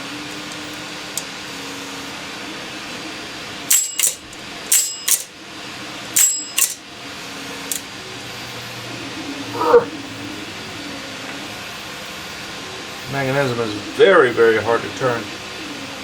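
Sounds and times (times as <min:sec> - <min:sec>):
cash register keys clacking: 0:03.7 - 0:05.4, 0:06.2 - 0:06.8.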